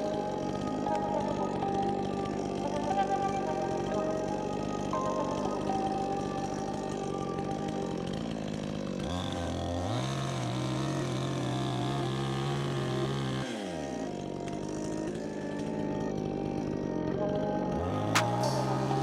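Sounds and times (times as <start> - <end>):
chainsaw engine revving: 0.0 - 19.0.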